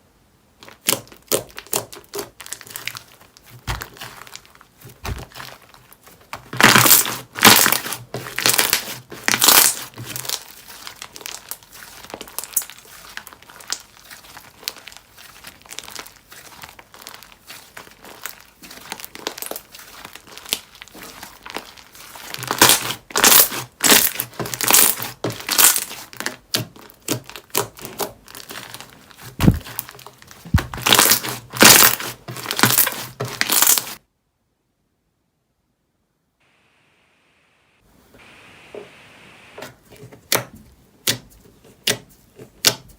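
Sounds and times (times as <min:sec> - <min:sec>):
slime crackling and popping: 0:00.6 - 0:34.0
slime squishing: 0:00.6 - 0:34.0.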